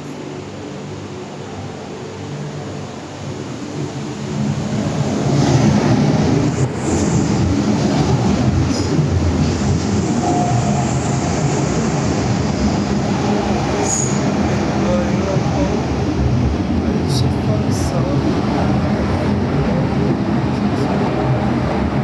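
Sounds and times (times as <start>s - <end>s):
train wheels rumbling on rail: 3.6s - 22.0s
wheel squeals: 13.8s - 14.3s.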